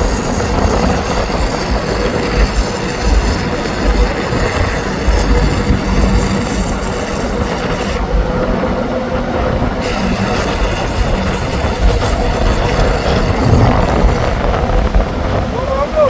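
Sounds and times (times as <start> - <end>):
heavy machinery rumbling: 0.0 - 16.0.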